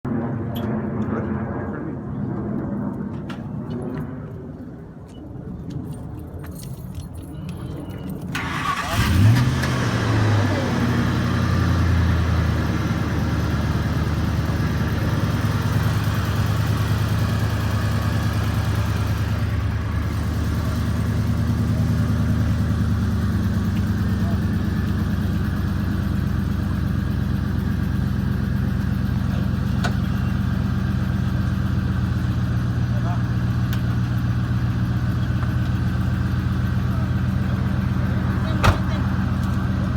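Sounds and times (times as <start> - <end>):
low rumble: 0.1 - 6.2
keys jangling: 5.9 - 8.3
truck engine cranking and starting: 8.3 - 39.9.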